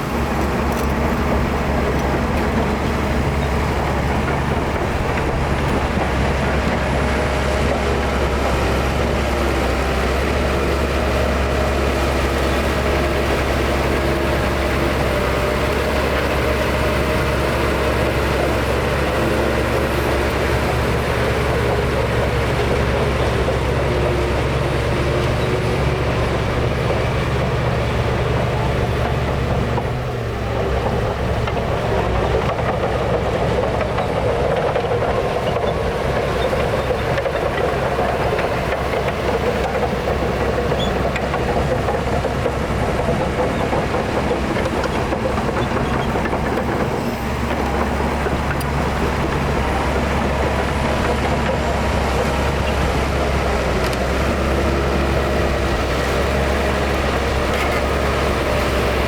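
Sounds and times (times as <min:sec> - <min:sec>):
heavy diesel engines rumbling: 0:00.0 - 0:59.0.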